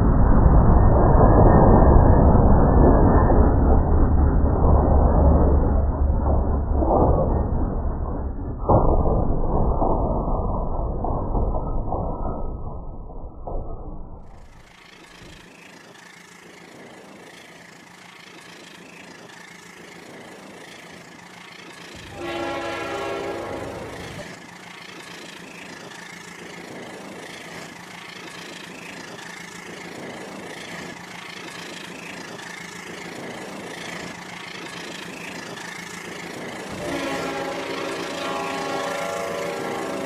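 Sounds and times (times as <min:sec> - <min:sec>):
toy train motor hum: 0:14.3 - 0:40.0
toy train horn sound effect: 0:22.0 - 0:24.4, 0:36.7 - 0:40.0.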